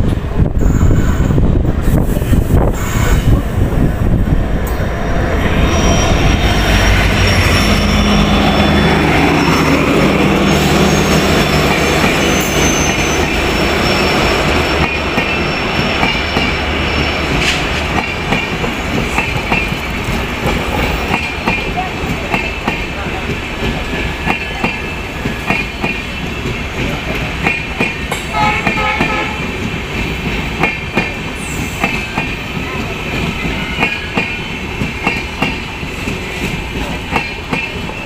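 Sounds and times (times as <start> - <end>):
high wheel squeal: 5.2 - 17.8.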